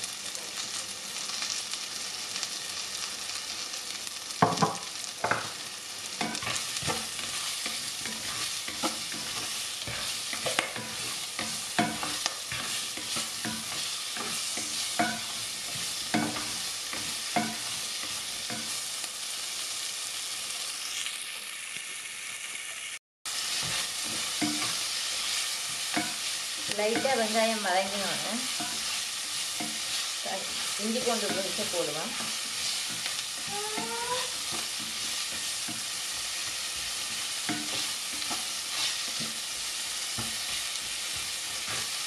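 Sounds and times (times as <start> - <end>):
food sizzling in hot oil: 0.0 - 42.0
spatula scraping a pot: 6.2 - 18.8, 28.4 - 39.5.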